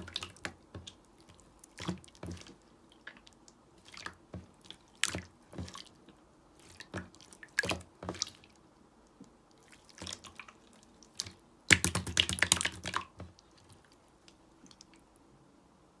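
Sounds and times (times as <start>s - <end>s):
slime squishing and clicking: 11.1s - 13.2s.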